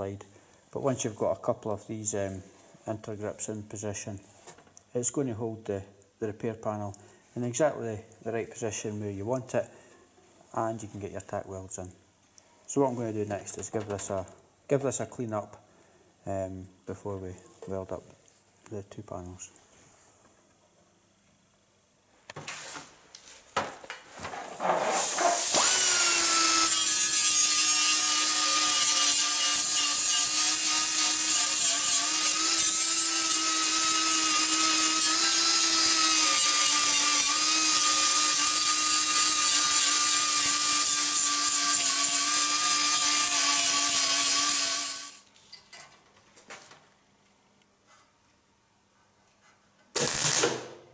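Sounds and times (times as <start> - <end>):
electric grinder on steel: 24.8 - 45.2, 50.0 - 50.4.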